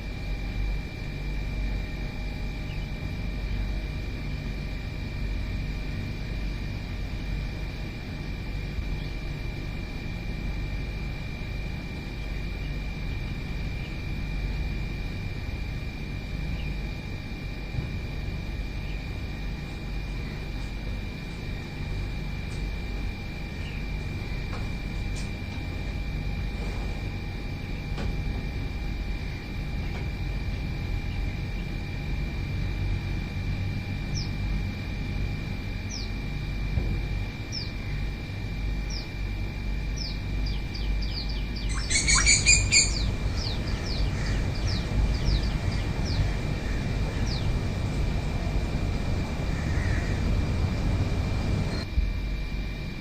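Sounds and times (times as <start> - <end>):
steady low rumble: 0.0 - 53.0
birds chirping: 16.4 - 16.9, 23.4 - 24.4, 35.8 - 36.1, 38.8 - 39.2, 40.0 - 47.9
thin steady high tone: 37.4 - 46.6
loud bird call: 40.8 - 47.6, 49.5 - 50.3.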